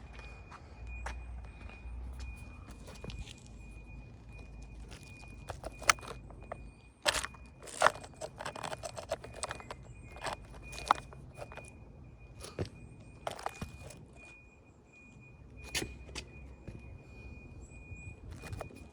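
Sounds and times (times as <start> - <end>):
clicks knocks and crunches: 4.4 - 11.7, 12.4 - 14.2, 18.3 - 18.9.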